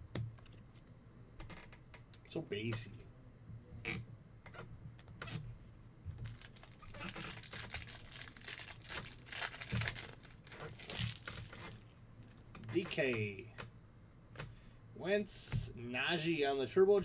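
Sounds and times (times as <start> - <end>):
foil wrapper tearing and crinkling: 6.2 - 11.8.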